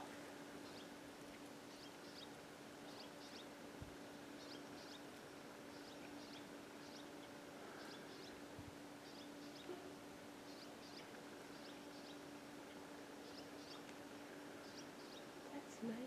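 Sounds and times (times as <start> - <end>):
low hum and hiss: 0.0 - 16.0
small bird chirping: 1.7 - 3.5, 4.4 - 5.1, 5.7 - 8.4, 9.0 - 13.9, 14.6 - 15.4.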